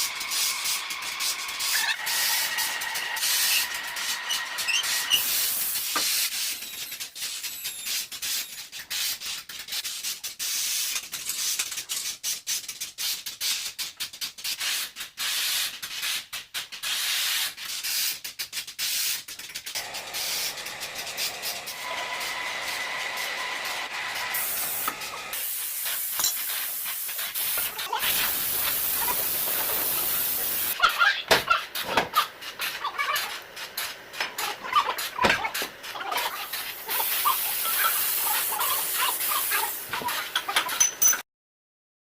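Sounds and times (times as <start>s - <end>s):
factory machine hiss: 0.0s - 6.6s, 19.8s - 30.8s, 36.5s - 39.9s.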